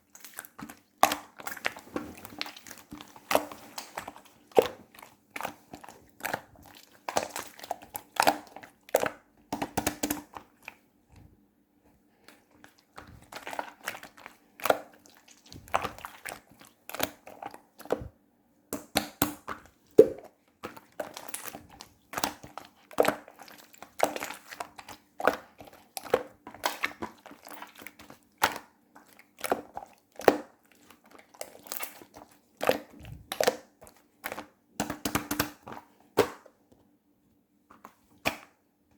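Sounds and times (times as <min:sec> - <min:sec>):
sticky slime crackles: 0:00.0 - 0:10.8, 0:12.2 - 0:18.1.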